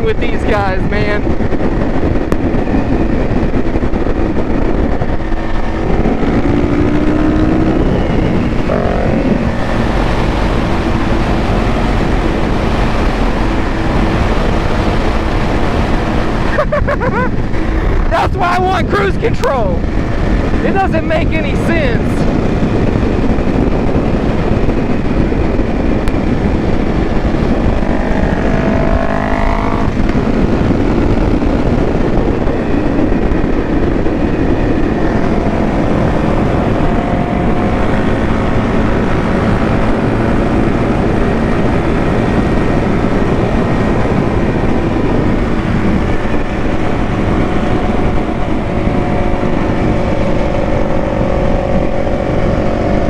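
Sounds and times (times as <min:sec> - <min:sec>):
motorcycle running: 0:00.0 - 0:53.0
wind noise on microphone: 0:00.0 - 0:53.0
engine revving up: 0:05.2 - 0:16.7, 0:27.2 - 0:31.4.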